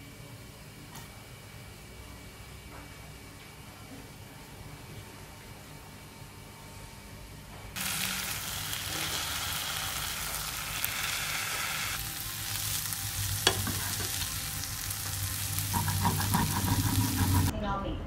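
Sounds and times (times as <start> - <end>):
potato sizzling in a frying pan: 7.8 - 17.5.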